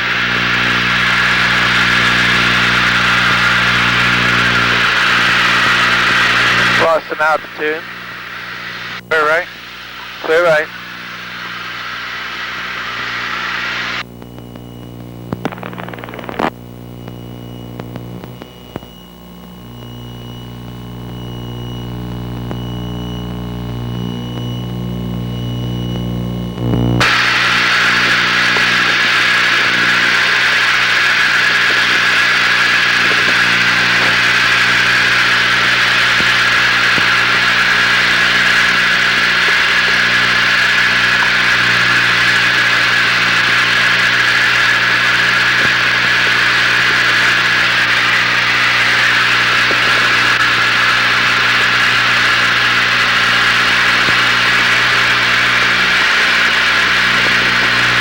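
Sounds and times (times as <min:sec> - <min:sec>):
propeller plane engines droning: 0:00.0 - 0:16.2, 0:27.0 - 0:58.0
clicks: 0:14.2 - 0:19.0.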